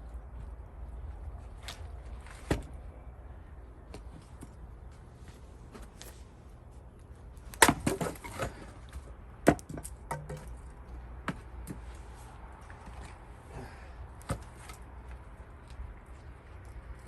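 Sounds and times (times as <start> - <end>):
axe striking wood: 7.5 - 8.5, 9.4 - 10.6.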